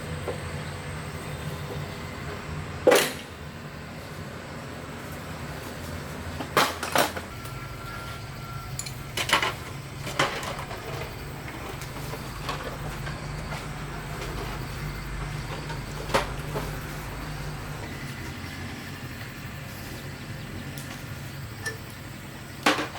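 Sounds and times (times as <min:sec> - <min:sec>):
low mechanical hum: 0:00.0 - 0:22.9.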